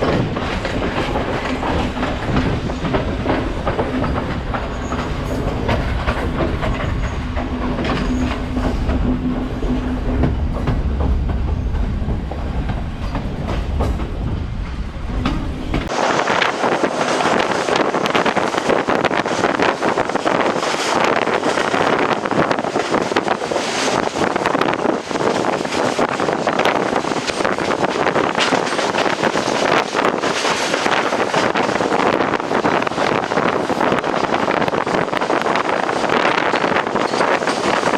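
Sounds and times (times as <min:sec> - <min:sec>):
train rumbling and humming: 0:00.0 - 0:37.9
wheels clattering over rails: 0:00.0 - 0:37.9
loud rushing noise: 0:15.8 - 0:19.2.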